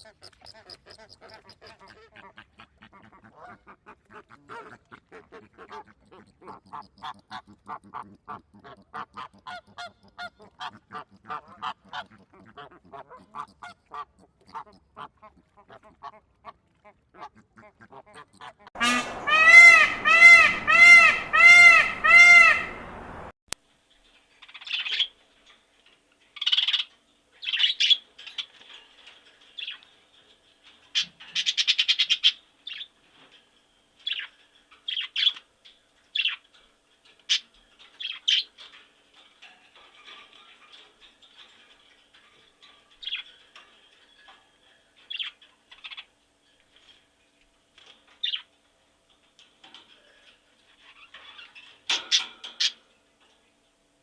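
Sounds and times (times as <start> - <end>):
loud pitched bird call: 18.8 - 22.8.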